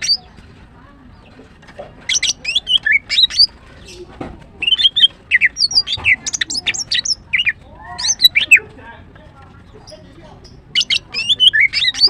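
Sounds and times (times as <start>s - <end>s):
bird whistling chirps: 2.1s - 3.5s, 4.6s - 8.6s, 10.7s - 12.0s.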